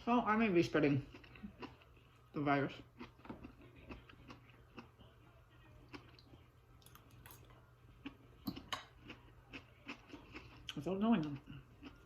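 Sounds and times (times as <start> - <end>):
chewing and mouth clicks: 1.0 - 2.1, 5.8 - 12.0.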